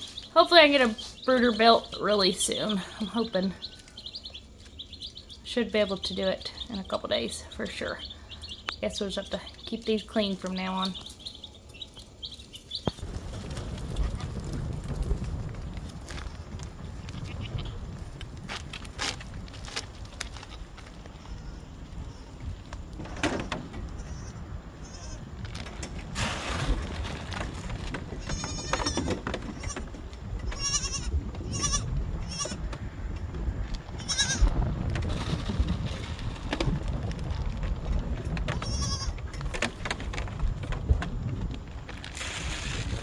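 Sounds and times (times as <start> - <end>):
wind rumble on microphone: 11.7 - 43.0
baby goats bleating: 23.9 - 25.3, 28.2 - 32.7, 34.0 - 34.5, 38.5 - 39.2.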